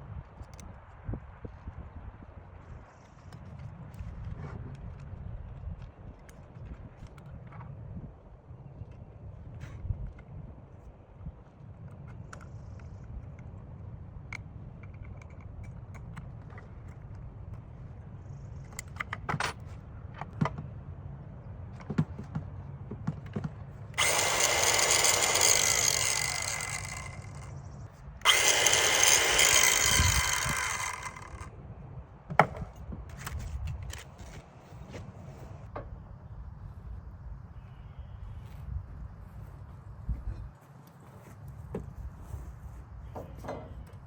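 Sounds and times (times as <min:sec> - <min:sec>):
knocks and clicks of handling wood: 0:21.7 - 0:23.7, 0:32.3 - 0:35.0, 0:43.0 - 0:44.0
circular saw cutting wood: 0:24.0 - 0:27.6, 0:28.2 - 0:31.5.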